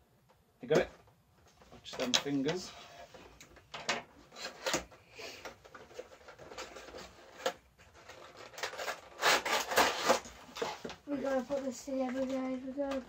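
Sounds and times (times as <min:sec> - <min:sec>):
packaging rubbing and scraping: 0:05.7 - 0:13.0.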